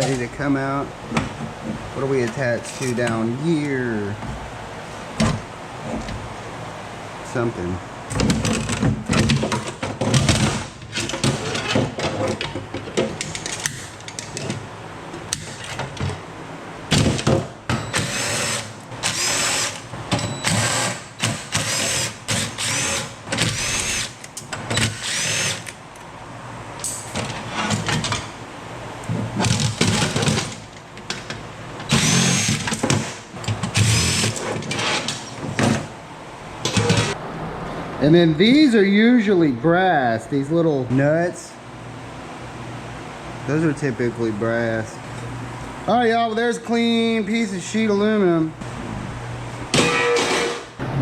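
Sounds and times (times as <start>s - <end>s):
power drill whining: 17.9s - 19.8s, 20.4s - 24.1s, 24.7s - 25.7s, 31.9s - 32.7s, 33.8s - 34.4s.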